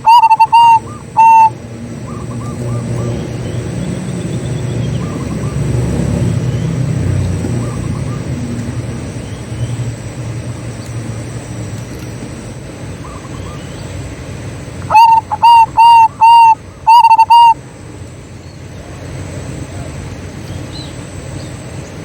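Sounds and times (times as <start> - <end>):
dove cooing: 0.0 - 4.0, 14.8 - 17.6
low steady rumble: 0.0 - 22.0.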